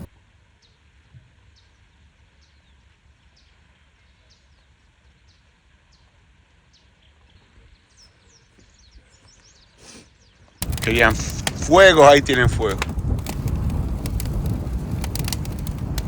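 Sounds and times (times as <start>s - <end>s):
low outdoor rumble: 10.6s - 16.0s.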